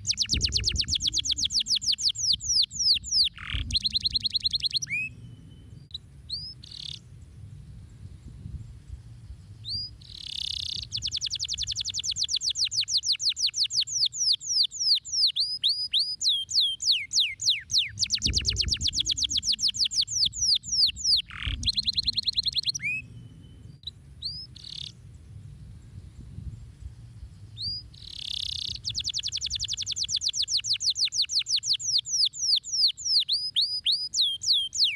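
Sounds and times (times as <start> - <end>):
canary call notes: 0.0 - 5.2, 10.1 - 23.1
canary singing: 0.0 - 7.0, 9.7 - 25.0, 27.6 - 34.9.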